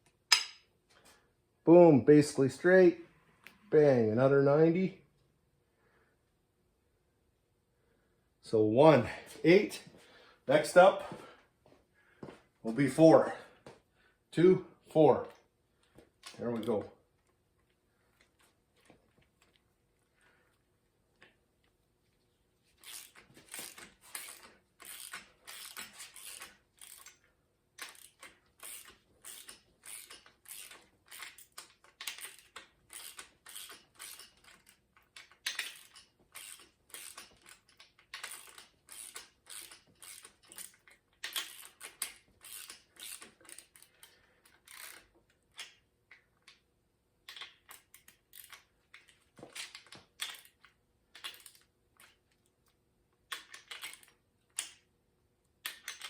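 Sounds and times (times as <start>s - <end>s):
hand tools clicking on metal: 22.8s - 46.6s, 55.6s - 56.0s.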